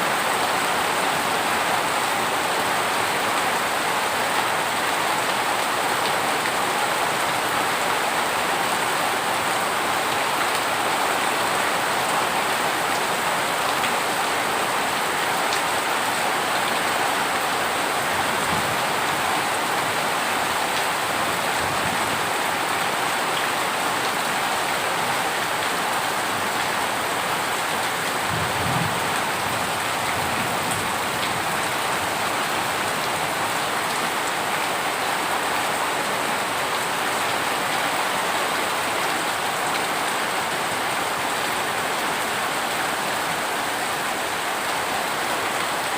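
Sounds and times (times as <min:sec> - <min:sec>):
heavy rain falling: 0:00.0 - 0:45.9.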